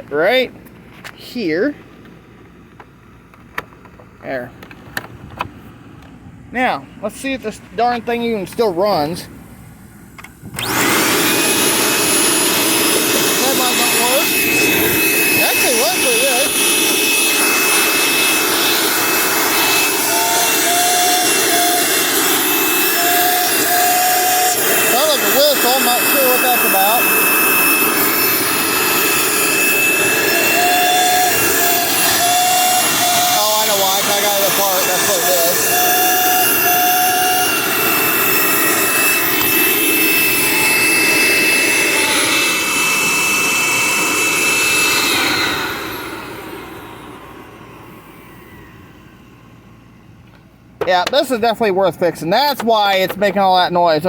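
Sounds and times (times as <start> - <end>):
vacuum cleaner motor running: 10.2 - 51.0
high whistle: 13.5 - 50.1.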